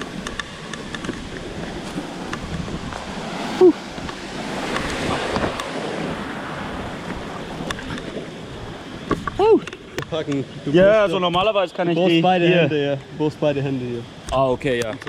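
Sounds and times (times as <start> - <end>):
wind on microphone: 0.0 - 10.6
rushing river water: 0.0 - 15.0.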